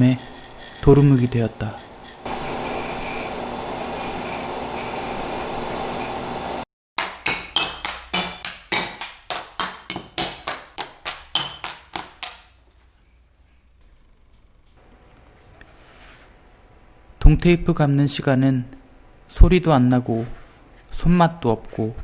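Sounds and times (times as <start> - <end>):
abrasive glass grinding: 0.0 - 6.4.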